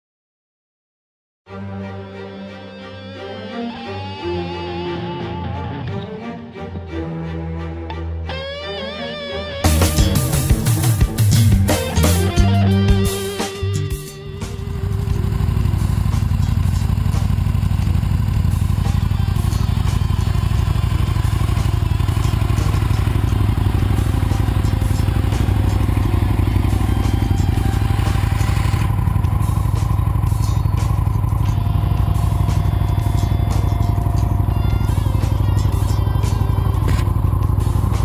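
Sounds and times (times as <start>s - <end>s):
motorcycle engine idling: 9.7s - 38.0s.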